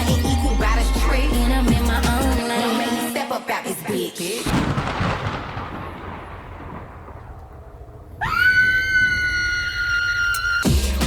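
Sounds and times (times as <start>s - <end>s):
thunder-like rushing noise: 4.4s - 8.4s.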